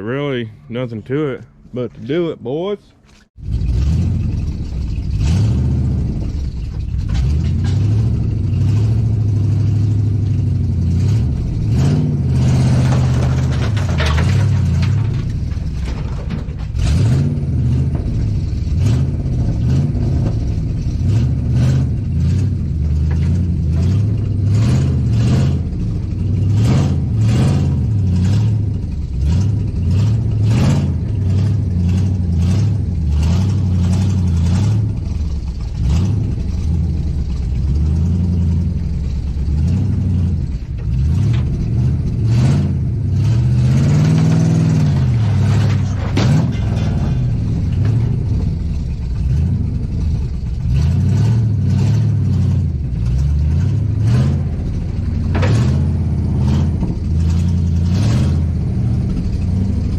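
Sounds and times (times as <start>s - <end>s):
pickup engine revving: 3.4s - 59.9s
scattered knocks: 12.7s - 21.0s.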